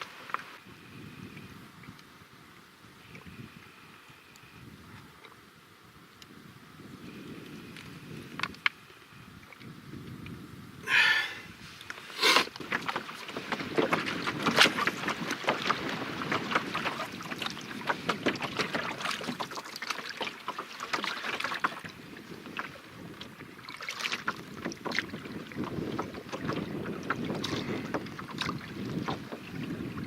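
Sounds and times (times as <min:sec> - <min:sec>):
water splashing against canoe: 0:10.9 - 0:30.0.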